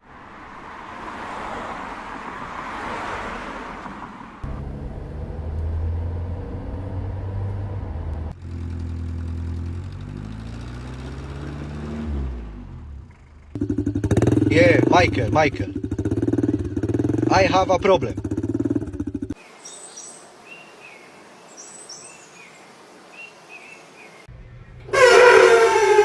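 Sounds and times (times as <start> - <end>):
engine speeding up: 4.4 - 19.4, 24.9 - 26.0.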